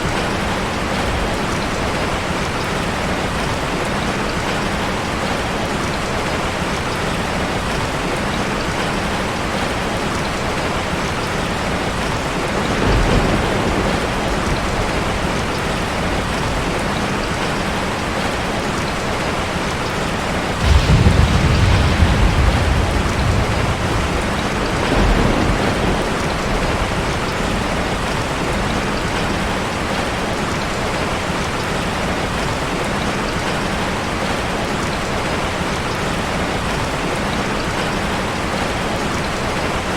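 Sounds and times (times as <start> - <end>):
heavy rain on a car: 0.0 - 39.9
thunder rumbling: 11.5 - 18.3, 20.5 - 30.0.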